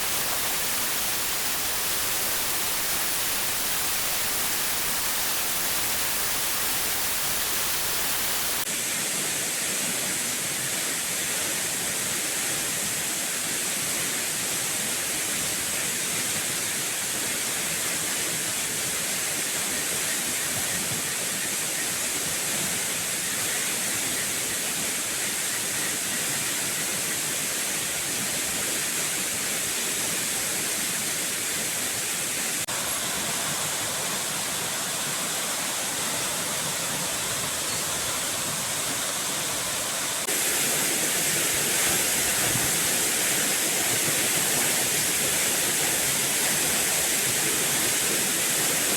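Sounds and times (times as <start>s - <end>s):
falling water rushing: 0.0s - 8.9s, 28.5s - 48.9s.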